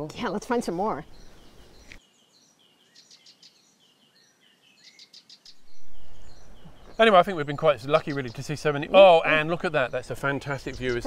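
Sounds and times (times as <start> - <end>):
small birds chirping: 0.0 - 11.0
low rushing noise: 5.6 - 8.2.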